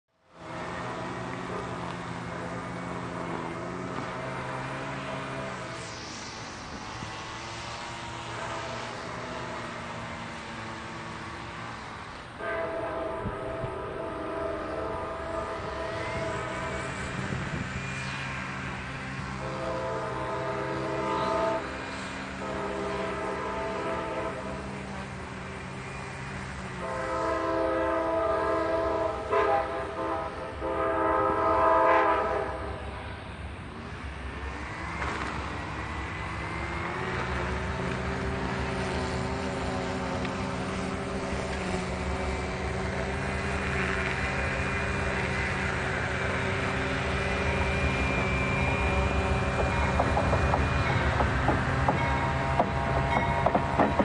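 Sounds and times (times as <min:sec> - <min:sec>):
train on rails: 0:00.1 - 0:54.0
diesel locomotive rumble: 0:00.2 - 0:54.0
thin high whine: 0:00.8 - 0:10.1
train air horn: 0:06.8 - 0:09.8, 0:12.4 - 0:32.9, 0:37.7 - 0:51.0.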